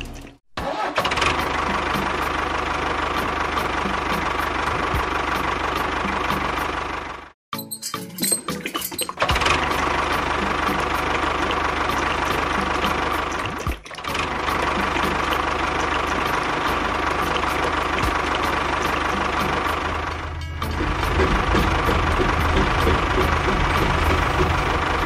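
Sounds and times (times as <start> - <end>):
model machine engines running: 9.3 - 25.0.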